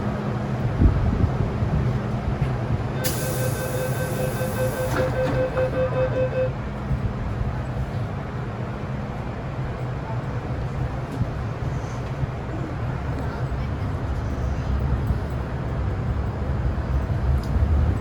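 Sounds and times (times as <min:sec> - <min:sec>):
train low rumble: 0:00.0 - 0:18.0.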